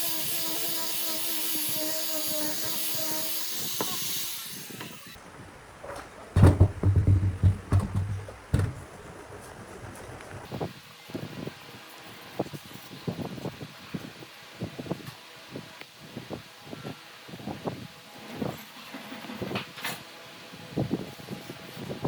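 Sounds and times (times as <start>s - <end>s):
heavy knocks and thuds: 5.8s - 10.0s.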